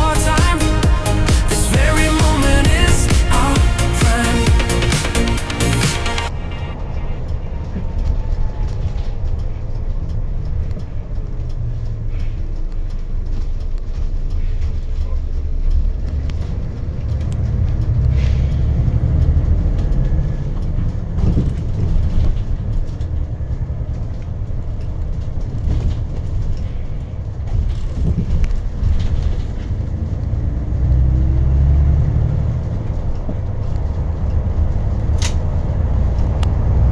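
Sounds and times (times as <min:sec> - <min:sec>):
bus engine and tyre rumble: 0:05.6 - 0:36.9
sharp click: 0:35.1 - 0:35.5.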